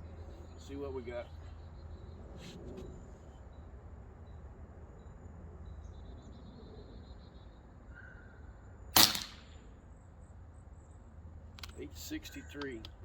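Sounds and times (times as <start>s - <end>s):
air rifle shot: 9.0s - 9.6s.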